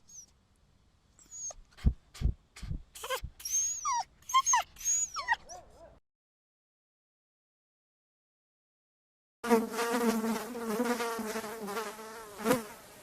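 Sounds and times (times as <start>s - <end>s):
animal whining squeals: 1.2s - 1.6s, 3.0s - 5.6s.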